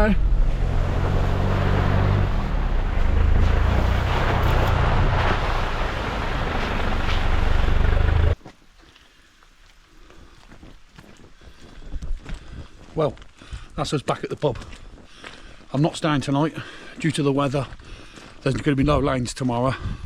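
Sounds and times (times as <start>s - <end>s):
road and wind noise: 0.0s - 8.4s, 17.0s - 20.0s
truck engine: 0.0s - 8.4s.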